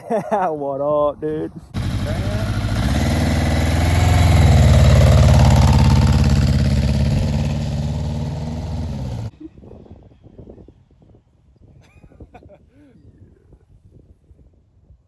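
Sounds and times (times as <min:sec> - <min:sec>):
vehicle engine running: 0:01.8 - 0:09.3.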